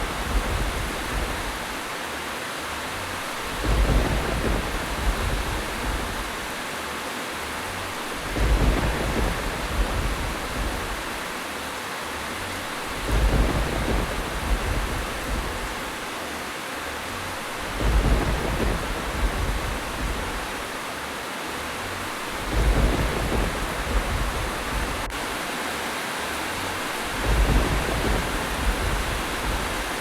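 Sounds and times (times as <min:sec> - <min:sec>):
deep thunder rumbles: 0:00.0 - 0:01.9, 0:03.0 - 0:06.7, 0:07.8 - 0:11.3, 0:12.7 - 0:16.2, 0:17.1 - 0:20.9, 0:21.8 - 0:25.5, 0:26.5 - 0:30.0
heavy rain hiss: 0:00.0 - 0:30.0.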